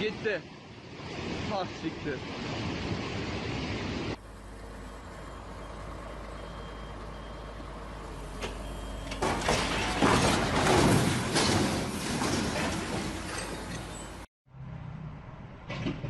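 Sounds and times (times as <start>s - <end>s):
heavy truck humming: 4.2s - 14.3s.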